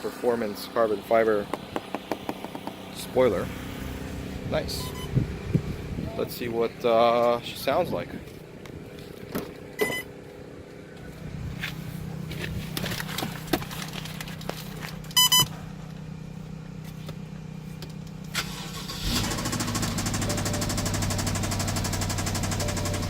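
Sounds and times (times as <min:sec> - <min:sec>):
car engine starting and clattering: 0:00.1 - 0:23.0
short electronic beeps: 0:04.8 - 0:05.2, 0:09.8 - 0:10.1, 0:15.2 - 0:15.5.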